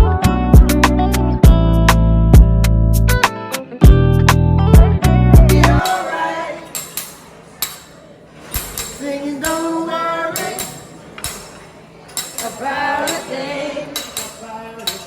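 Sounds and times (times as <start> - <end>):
person singing: 4.8 - 6.8
clinking percussion strikes: 5.6 - 9.7, 10.3 - 15.0.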